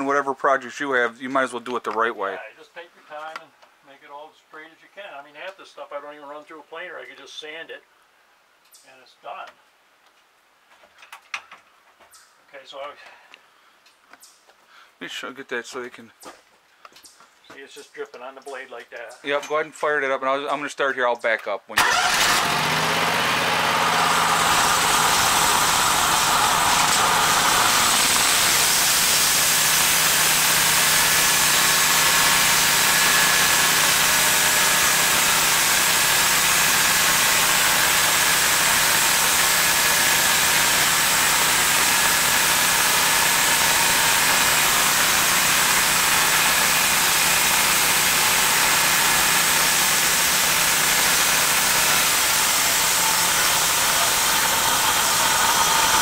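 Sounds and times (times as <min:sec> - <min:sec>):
sawmill engine hum: 0:21.8 - 0:56.0
band blade hissing through log: 0:24.5 - 0:38.0.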